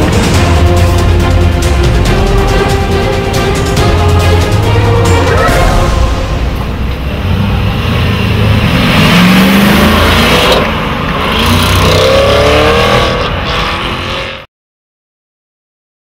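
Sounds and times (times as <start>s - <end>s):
car engine accelerating: 5.1s - 14.5s.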